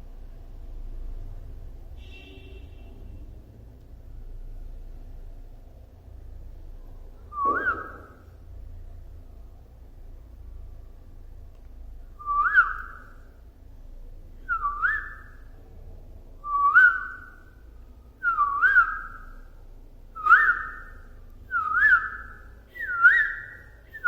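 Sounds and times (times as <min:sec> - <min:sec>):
budgerigar whistled call: 0:07.4 - 0:08.2.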